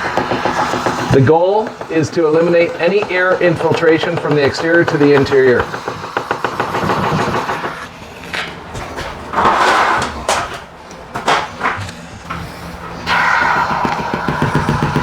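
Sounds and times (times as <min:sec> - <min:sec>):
spray foam gun hissing: 0:00.0 - 0:03.6.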